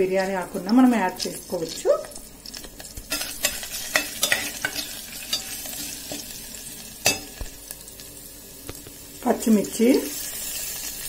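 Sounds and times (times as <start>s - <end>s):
paste sizzling in hot oil: 0.0s - 11.0s
metal spoon scraping and knocking pot: 3.1s - 6.2s.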